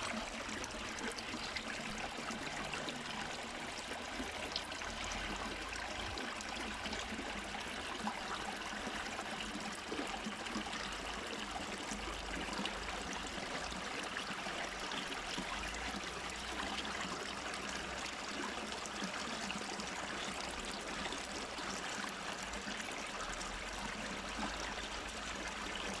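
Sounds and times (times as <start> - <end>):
water running and trickling: 0.0 - 26.0.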